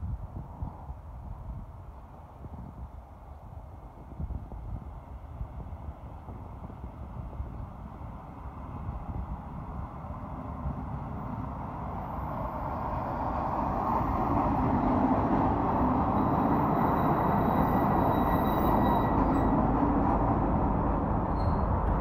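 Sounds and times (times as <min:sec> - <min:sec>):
diesel railcar engine: 0:03.1 - 0:22.0
train wheels on rails: 0:09.4 - 0:22.0.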